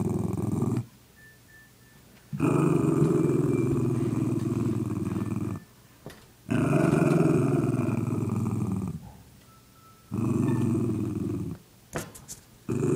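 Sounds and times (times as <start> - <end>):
dog growling: 0.0 - 0.9, 2.4 - 5.7, 6.5 - 9.1, 10.1 - 11.6, 12.7 - 12.9.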